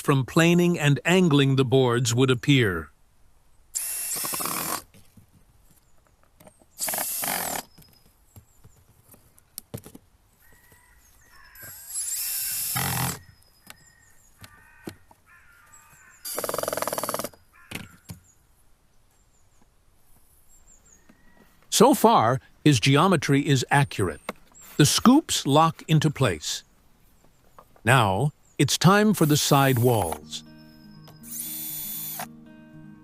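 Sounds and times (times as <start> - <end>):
power drill drilling into wood: 3.8 - 4.8, 6.8 - 7.7, 11.7 - 13.2, 16.3 - 17.4, 31.3 - 32.3.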